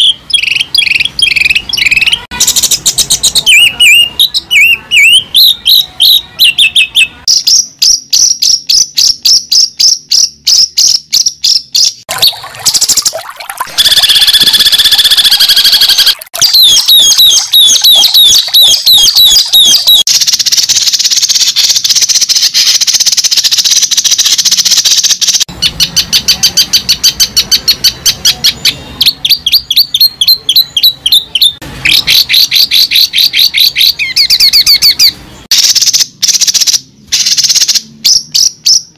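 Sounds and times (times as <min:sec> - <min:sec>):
bird chirps and trills: 0:00.0 - 0:38.9
bird warbling: 0:12.1 - 0:20.1.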